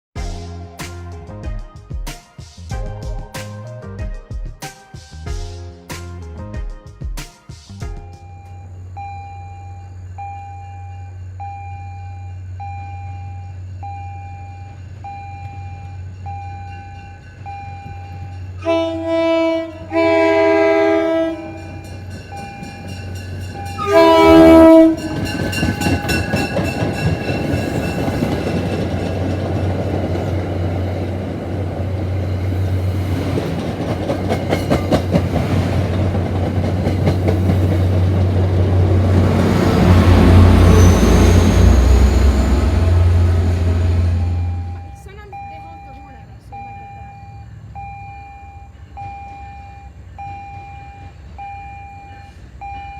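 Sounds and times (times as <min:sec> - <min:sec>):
train air horn blasts: 0:18.6 - 0:21.9, 0:23.6 - 0:26.4
bell dinging: 0:21.5 - 0:28.4
train wheels clattering over rail joints: 0:24.7 - 0:40.0.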